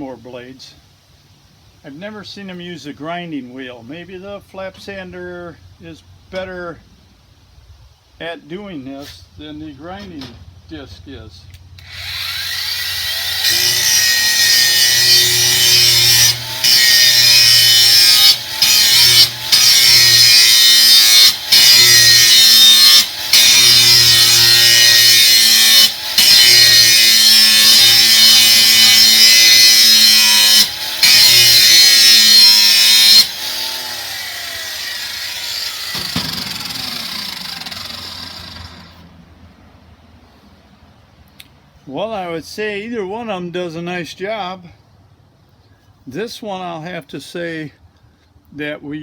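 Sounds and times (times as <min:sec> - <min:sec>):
angle grinder grinding steel: 0:11.8 - 0:39.1.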